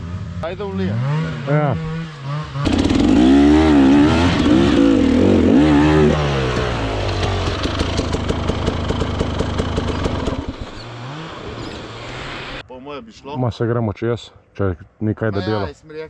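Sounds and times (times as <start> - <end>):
dirt bike engine revving and idling: 0.0 - 12.6.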